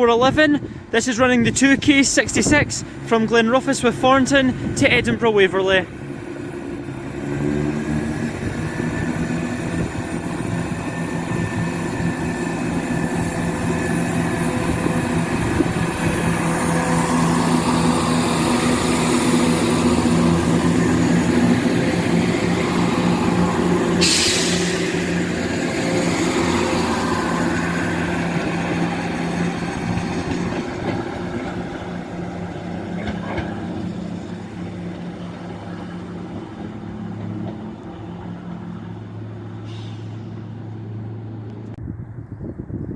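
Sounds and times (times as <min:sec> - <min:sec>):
diesel train engines running: 0:00.0 - 0:42.0
sharp hiss: 0:24.0 - 0:25.2.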